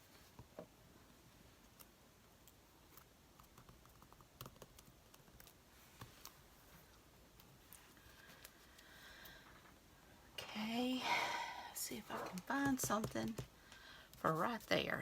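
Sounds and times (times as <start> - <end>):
paper cutouts clicking and tapping: 12.1 - 15.0.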